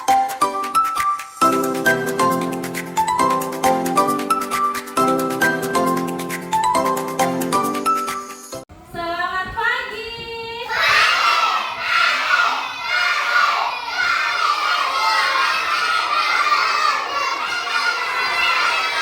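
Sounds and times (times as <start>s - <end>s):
children shouting and chattering: 10.4s - 19.0s.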